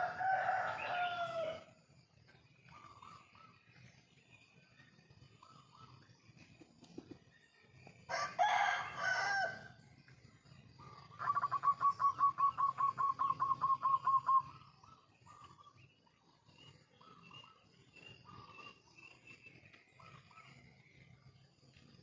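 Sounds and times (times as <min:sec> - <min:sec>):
rooster crowing: 0:00.0 - 0:01.7, 0:08.1 - 0:09.7.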